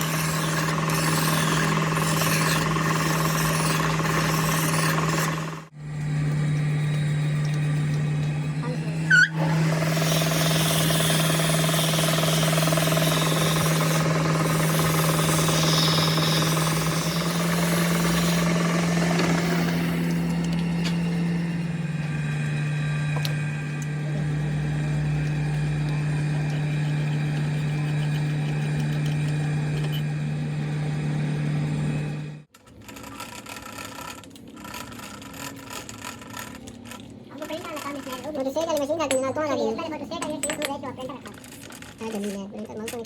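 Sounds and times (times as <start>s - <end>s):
machine humming: 0.0s - 33.0s.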